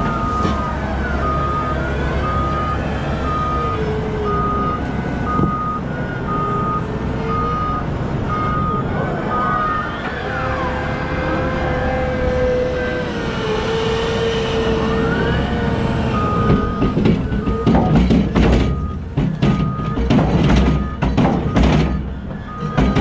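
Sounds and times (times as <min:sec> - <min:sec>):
diesel machinery whining: 0:00.0 - 0:23.0
reversing alarm beeping: 0:00.0 - 0:23.0
loud knocks and clatters: 0:16.5 - 0:23.0.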